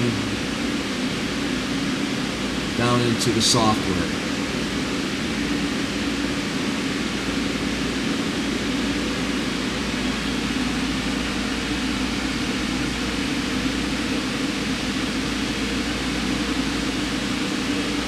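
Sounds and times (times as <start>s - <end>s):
machine hum and hiss: 0.0s - 18.0s.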